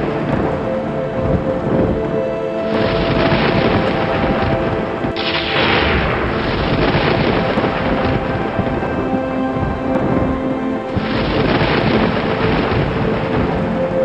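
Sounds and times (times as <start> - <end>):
steady hiss: 0.0 - 14.0
thunder rumbling: 0.0 - 14.0
thunderclap: 0.0 - 14.0.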